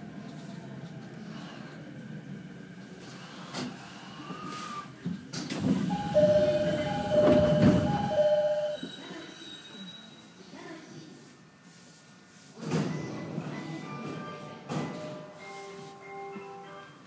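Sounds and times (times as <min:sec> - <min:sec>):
train wheels on rail: 0:00.0 - 0:09.9, 0:12.6 - 0:16.5
steady high tones: 0:05.9 - 0:08.8.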